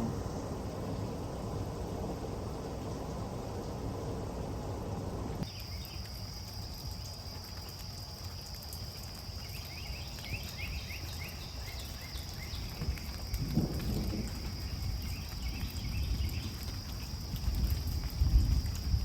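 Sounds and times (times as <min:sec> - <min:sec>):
low outdoor rumble: 0:00.0 - 0:05.6
insects trilling: 0:05.4 - 0:19.0
bird chirping: 0:09.4 - 0:13.3.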